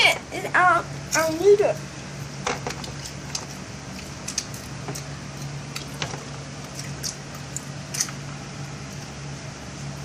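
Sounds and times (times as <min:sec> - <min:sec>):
chewing popcorn: 0:02.8 - 0:09.4.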